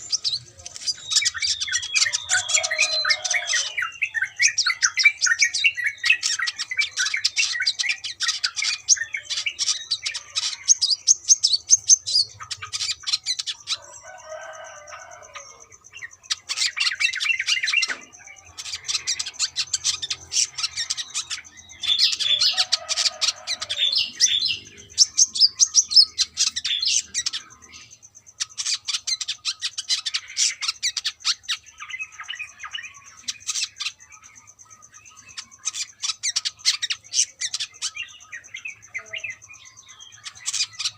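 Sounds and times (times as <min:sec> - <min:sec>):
bird chirping and trilling: 0:00.0 - 0:40.9.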